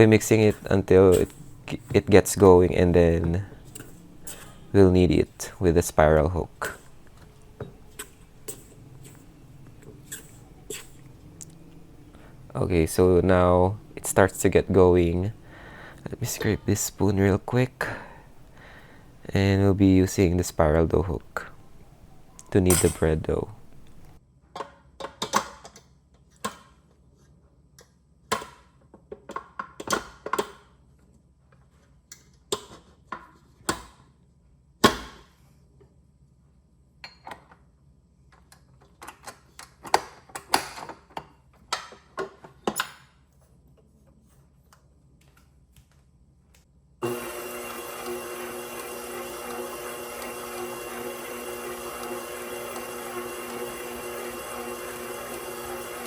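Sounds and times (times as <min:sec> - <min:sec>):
attachments clicking and clunking: 0:38.3 - 0:43.1
stand mixer motor humming: 0:47.0 - 0:56.0.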